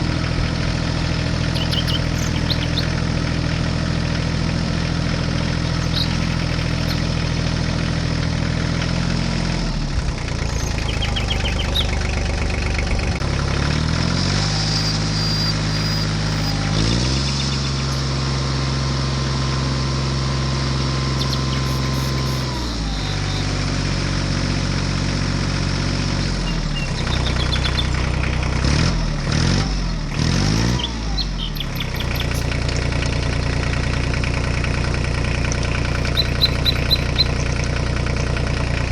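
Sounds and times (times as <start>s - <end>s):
tractor engine revving: 0.0s - 38.9s
bird chirps: 1.5s - 3.1s, 5.7s - 7.5s, 10.4s - 13.1s, 14.4s - 18.2s, 21.0s - 23.6s, 26.2s - 28.1s, 30.5s - 32.9s, 36.0s - 37.6s.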